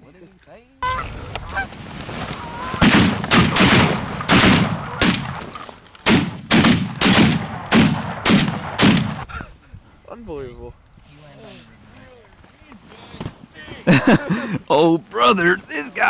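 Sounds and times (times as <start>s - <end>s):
faint goose call: 0.8s - 2.9s
shotgun blasts: 2.8s - 9.3s.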